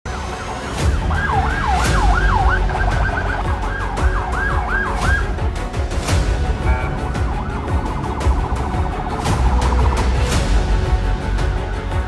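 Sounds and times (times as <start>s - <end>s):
music with heavy low beat: 0.8s - 12.0s
police siren yelping: 1.0s - 5.2s.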